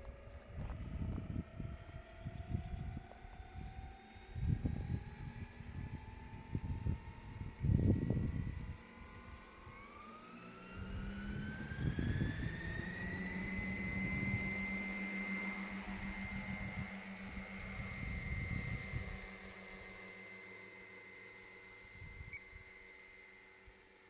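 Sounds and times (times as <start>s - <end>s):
model helicopter spooling up: 0.1s - 24.0s
wind gusts on microphone: 0.5s - 8.8s, 10.8s - 14.6s
low steady hum: 10.6s - 24.0s.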